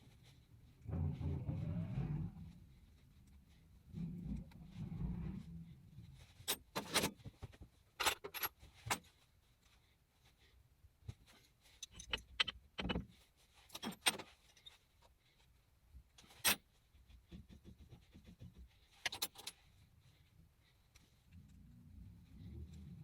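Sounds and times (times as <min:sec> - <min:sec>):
metal tools clinking and knocking: 0:08.0 - 0:09.0, 0:11.8 - 0:13.0.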